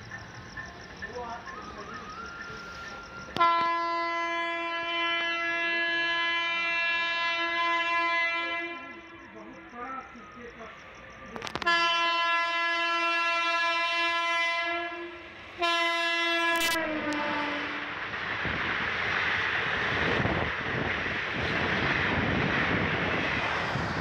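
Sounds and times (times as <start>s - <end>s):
passing train rushing: 0.0s - 24.0s
locomotive horn: 3.4s - 9.1s, 11.5s - 17.9s.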